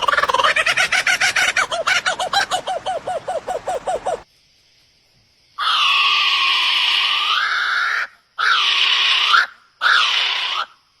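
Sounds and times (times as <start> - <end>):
bird harsh raspy calls: 0.0 - 4.2.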